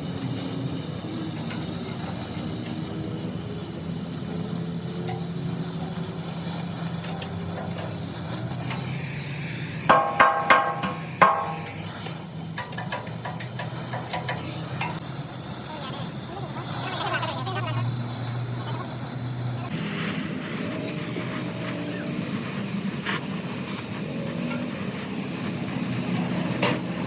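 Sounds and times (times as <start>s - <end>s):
steady hiss: 0.0s - 27.0s
hammer ringing on steel: 9.9s - 11.7s.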